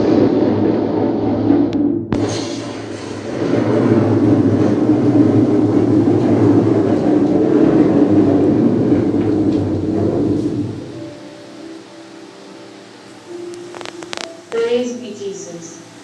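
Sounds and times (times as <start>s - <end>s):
loud rumbling sound effect: 0.0s - 11.2s
low drone: 0.0s - 16.0s.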